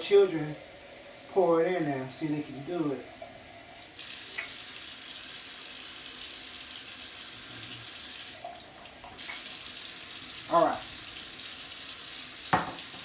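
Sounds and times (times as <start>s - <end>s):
faucet water filling a jar: 3.0s - 13.0s.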